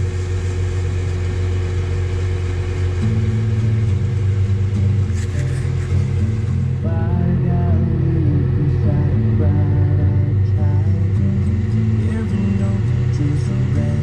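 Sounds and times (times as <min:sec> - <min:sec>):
tractor engine running: 0:00.0 - 0:14.0
radio music bass line: 0:02.8 - 0:14.0.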